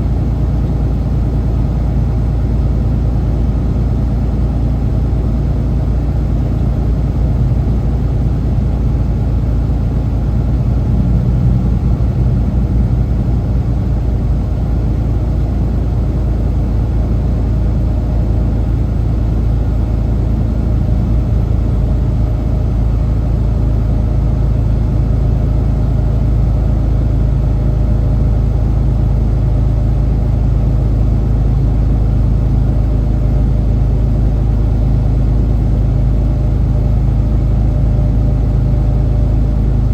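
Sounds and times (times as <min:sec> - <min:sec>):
truck diesel engine drone: 0:00.0 - 0:39.9
road noise: 0:07.3 - 0:17.1.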